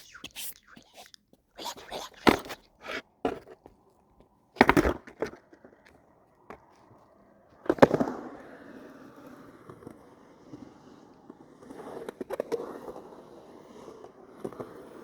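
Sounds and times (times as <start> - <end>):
skateboard smacking ground: 4.6 - 5.5.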